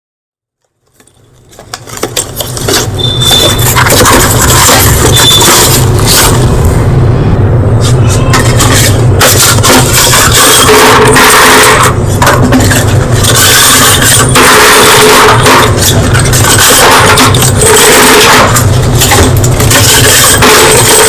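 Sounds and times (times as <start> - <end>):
steady low hum: 1.2 - 21.0
chalk crunching: 7.8 - 21.0.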